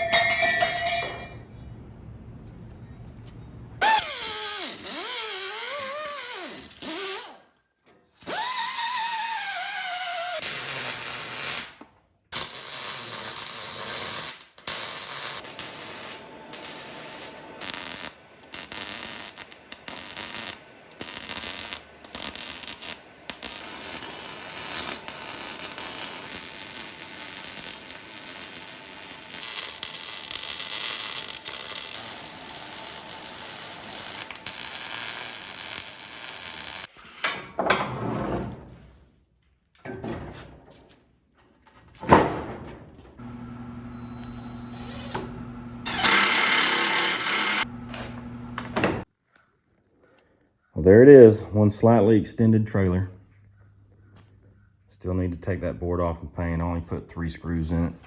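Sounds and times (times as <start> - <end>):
handheld power tool running: 43.9 - 48.7.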